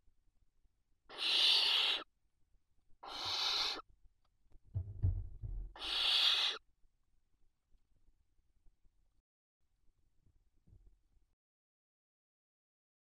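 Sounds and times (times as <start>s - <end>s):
barn owl hissing: 1.1s - 2.1s, 3.0s - 3.9s, 5.7s - 6.6s.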